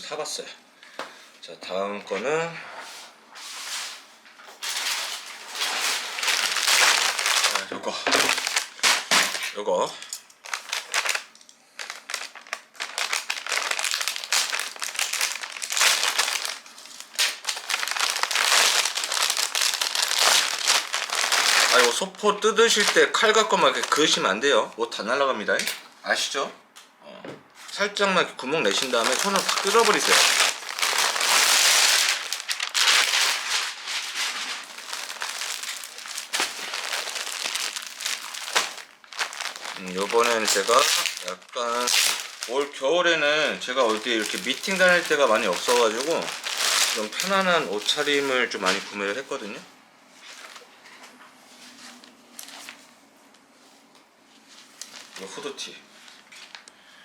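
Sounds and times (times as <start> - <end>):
packaging crinkling and tearing: 4.6 - 24.3, 28.6 - 42.8, 43.7 - 49.2, 54.8 - 55.4.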